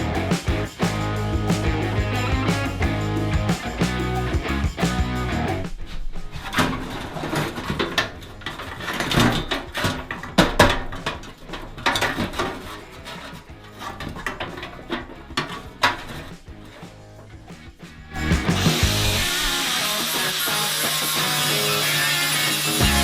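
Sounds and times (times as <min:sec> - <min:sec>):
background music: 0:00.0 - 0:05.8, 0:11.0 - 0:23.0.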